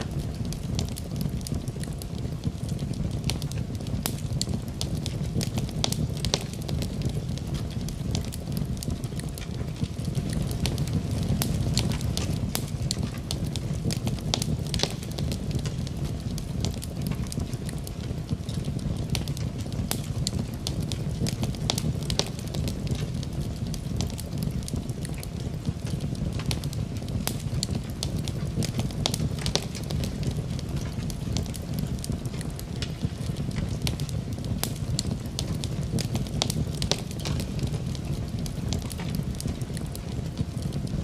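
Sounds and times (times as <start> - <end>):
low rumble of flames: 0.0 - 41.0
wood fire crackling and popping: 0.0 - 41.0.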